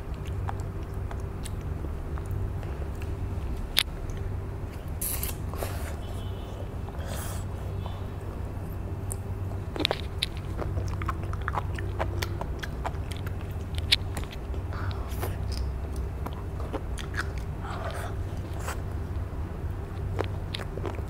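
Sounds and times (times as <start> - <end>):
wet clicking pops of chewing: 9.0 - 17.5.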